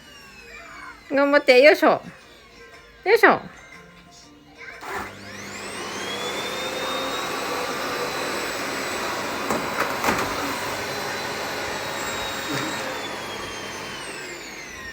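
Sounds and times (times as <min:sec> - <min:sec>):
vacuum cleaner motor whine: 0:00.0 - 0:01.6, 0:04.8 - 0:14.9.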